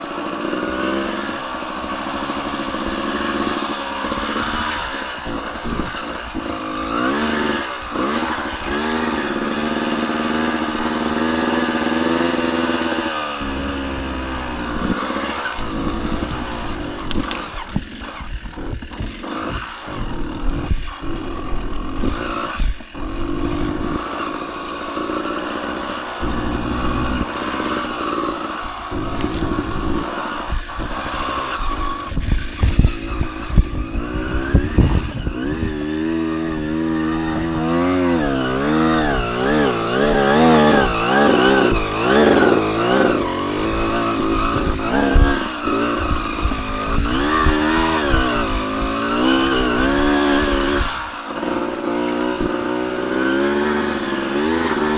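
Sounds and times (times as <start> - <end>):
dirt bike engine revving: 0.0 - 54.9
bike thumps: 13.4 - 19.2, 26.2 - 27.3.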